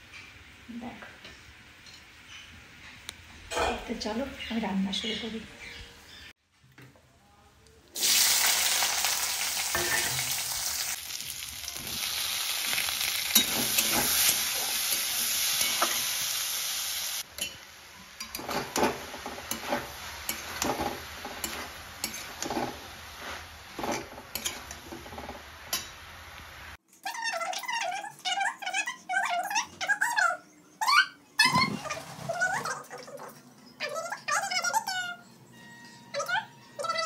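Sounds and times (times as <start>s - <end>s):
food sizzling in oil: 8.0s - 26.8s
spatula scraping pan: 13.3s - 16.1s, 18.2s - 25.9s.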